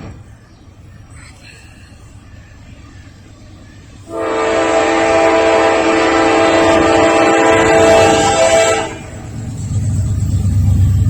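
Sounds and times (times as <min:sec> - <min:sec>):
low train rumble: 0:00.0 - 0:11.0
locomotive air horn blast: 0:04.1 - 0:09.3.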